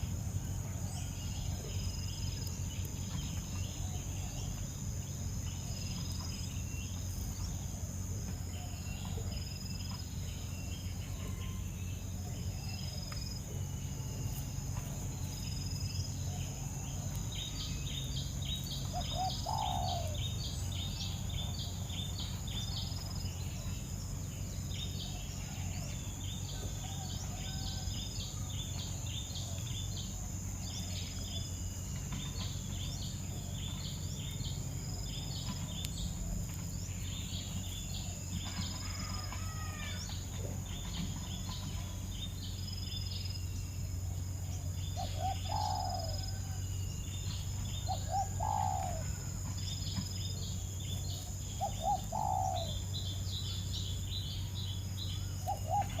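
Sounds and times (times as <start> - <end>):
nestling birds chirping: 0.0 - 56.0
louder lower bird calls: 16.2 - 22.9, 44.6 - 46.7, 47.3 - 50.1, 51.2 - 54.5.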